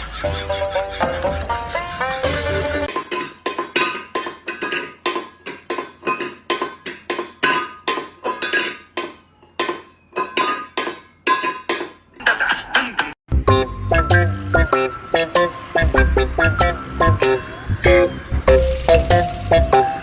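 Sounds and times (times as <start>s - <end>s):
hard objects clinking: 2.9s - 12.4s.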